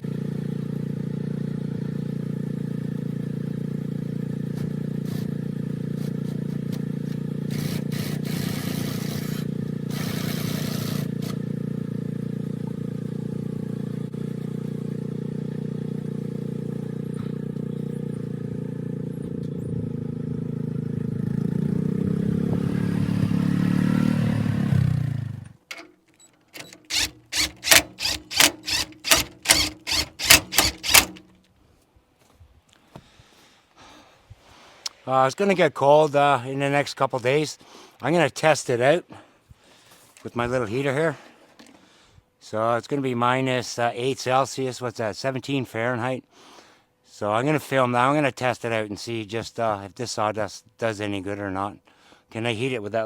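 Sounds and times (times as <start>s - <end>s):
garden tractor engine running: 0.0s - 20.5s, 25.7s - 31.4s
short regular pulses: 26.6s - 31.4s.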